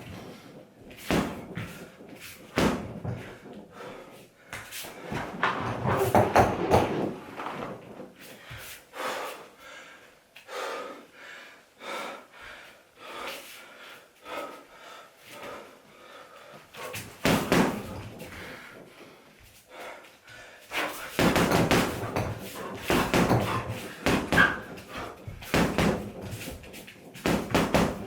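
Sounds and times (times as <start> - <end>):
punches on heavy bag: 0.9 - 3.6, 17.0 - 18.8, 20.8 - 28.0.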